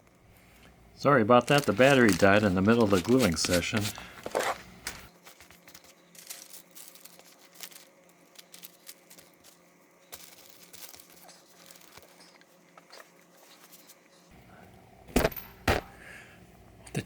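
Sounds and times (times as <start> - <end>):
paper rustling and crinkling: 1.1 - 14.3.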